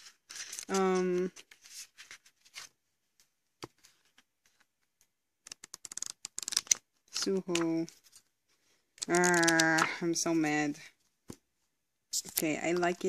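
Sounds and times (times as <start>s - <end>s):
paper rustling and flicking: 0.0s - 2.8s, 3.6s - 8.3s.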